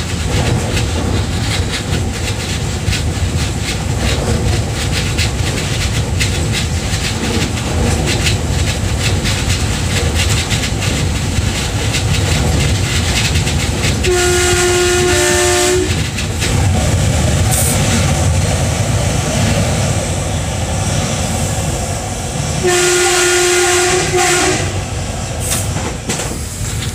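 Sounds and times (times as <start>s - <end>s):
train wheels rumbling on rails: 0.0s - 26.9s
train horn: 14.0s - 16.0s, 22.6s - 24.9s.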